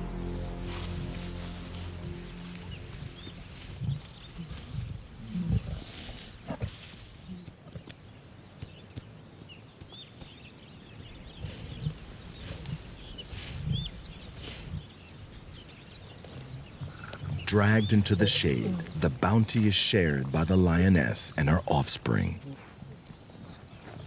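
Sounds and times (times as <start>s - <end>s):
lions growling: 16.3s - 21.2s.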